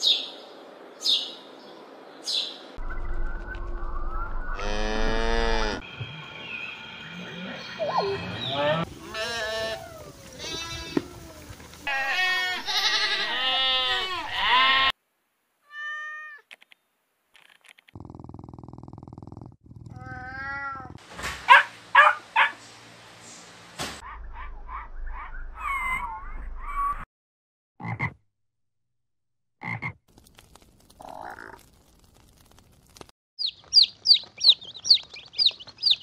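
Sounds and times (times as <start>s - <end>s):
cat meowing: 15.6s - 16.4s, 19.9s - 21.0s
dog barking sharply: 21.4s - 22.6s.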